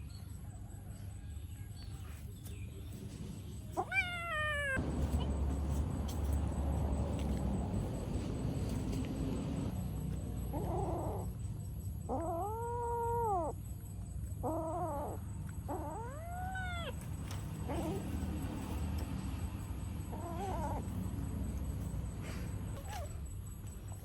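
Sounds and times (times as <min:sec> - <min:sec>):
cat meowing: 0:03.8 - 0:05.4, 0:10.5 - 0:11.3, 0:12.1 - 0:13.6, 0:14.4 - 0:17.1, 0:20.1 - 0:21.1
steady low rumble: 0:04.8 - 0:10.5.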